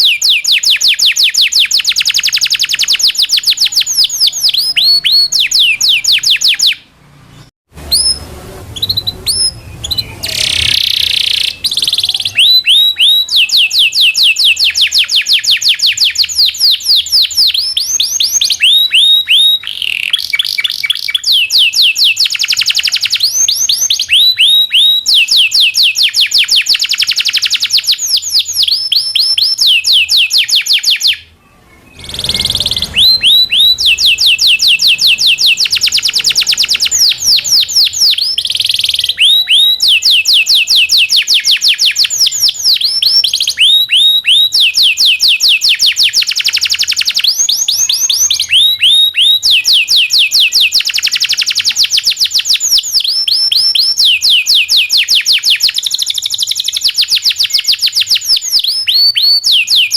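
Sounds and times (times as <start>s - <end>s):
canary singing trills: 0.0s - 59.9s
short noisy burst: 31.6s - 38.1s.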